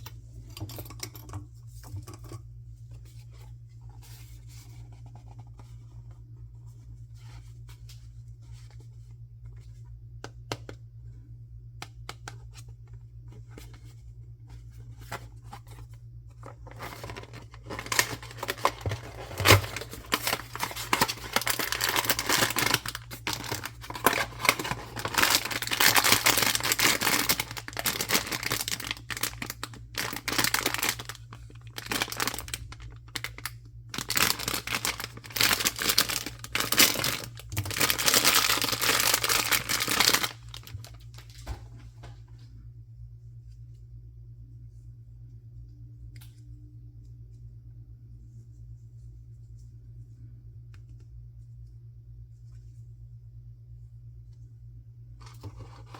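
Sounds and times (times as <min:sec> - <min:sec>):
plastic wrapping tearing and crinkling: 0:16.7 - 0:41.3.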